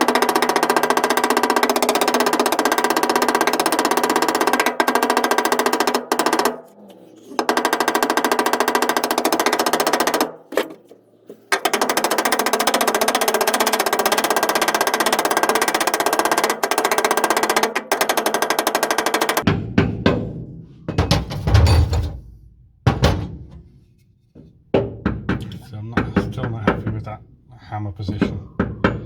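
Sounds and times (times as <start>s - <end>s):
air hammer on steel panel: 19.4s - 25.6s.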